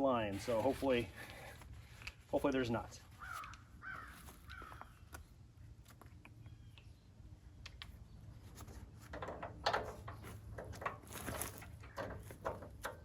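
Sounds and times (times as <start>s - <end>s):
metal couplers clicking: 9.1s - 13.0s.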